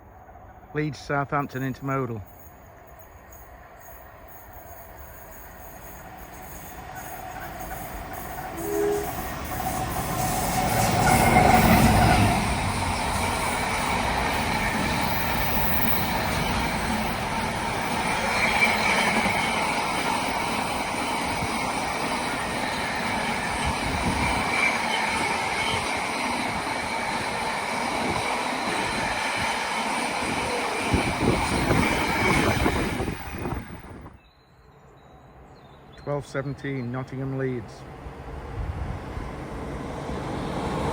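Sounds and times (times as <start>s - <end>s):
freight train rumbling past: 0.0s - 34.2s, 34.8s - 40.9s
high wheel squeal: 3.3s - 33.8s.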